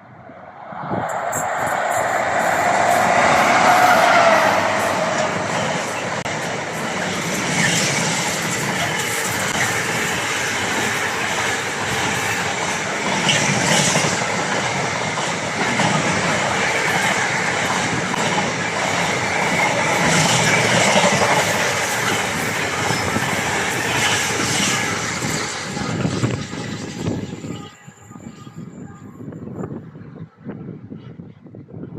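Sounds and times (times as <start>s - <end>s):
train wheels rumbling on rails: 0.0s - 27.8s
faint high squeal: 0.2s - 6.2s, 25.8s - 29.4s.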